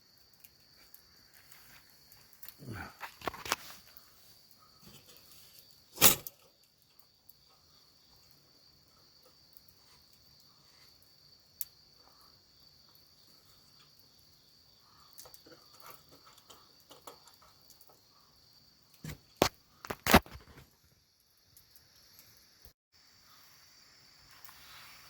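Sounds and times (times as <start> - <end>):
crickets trilling: 0.0 - 25.0
rustling and handling noise: 0.8 - 6.4.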